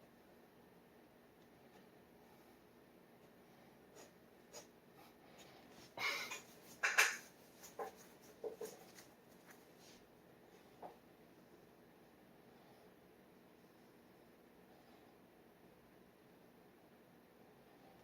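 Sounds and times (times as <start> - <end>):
dip pen scratching on paper: 7.5 - 9.6.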